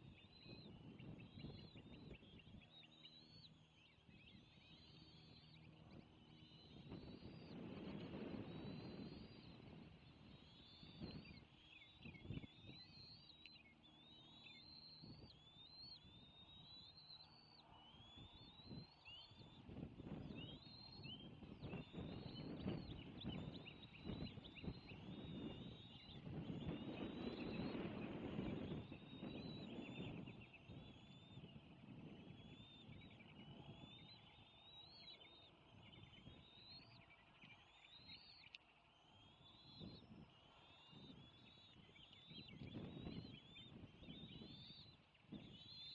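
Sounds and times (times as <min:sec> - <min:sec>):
low rumble of wind: 0:03.4 - 0:13.0, 0:17.6 - 0:34.5
eagles chirping: 0:20.3 - 0:45.9.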